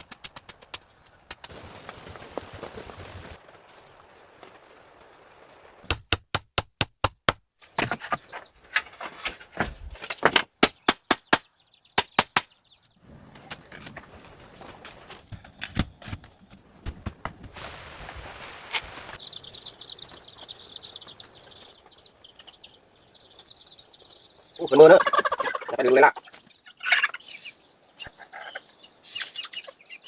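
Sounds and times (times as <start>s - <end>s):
sharp hand tool strikes: 5.8s - 7.4s, 10.6s - 12.5s.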